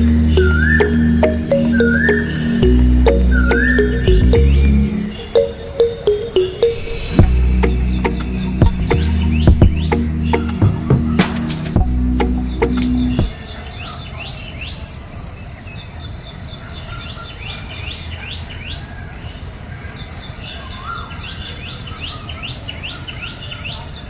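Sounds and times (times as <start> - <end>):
birds chirping: 0.0 - 13.3
low rumble: 7.2 - 13.3.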